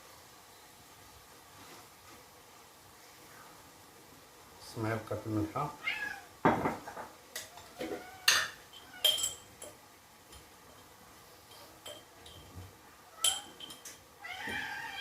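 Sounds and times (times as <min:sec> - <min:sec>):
cat meowing: 0:05.7 - 0:06.3, 0:07.7 - 0:09.1, 0:14.2 - 0:15.0
metal spoon clinking on container: 0:08.3 - 0:10.4, 0:11.5 - 0:12.5, 0:13.2 - 0:14.0.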